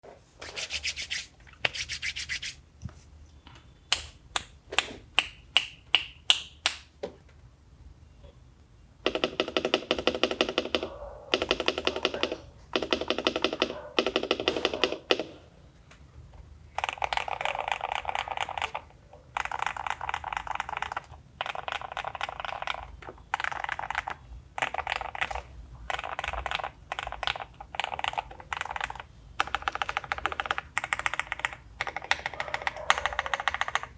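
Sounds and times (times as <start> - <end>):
mechanical keyboard typing: 9.0 - 15.4, 16.7 - 33.9.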